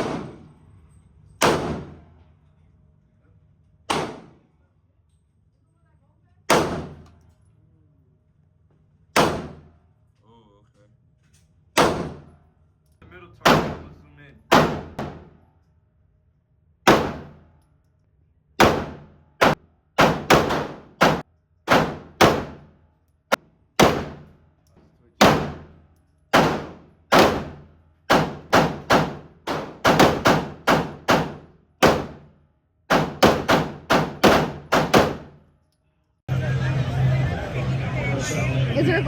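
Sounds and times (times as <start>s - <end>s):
gunshots with ringing echo: 0.0s - 0.5s, 1.4s - 2.1s, 3.9s - 4.5s, 6.5s - 7.1s, 9.2s - 9.8s, 11.8s - 12.4s, 13.4s - 15.4s, 16.9s - 17.4s, 18.6s - 22.7s, 23.8s - 24.3s, 25.2s - 32.2s, 32.9s - 35.4s.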